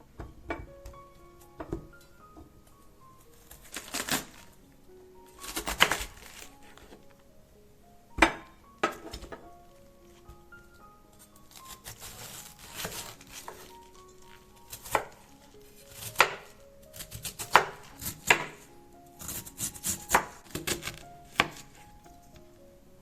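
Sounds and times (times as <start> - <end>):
knife chopping on cutting board: 19.2 - 21.8.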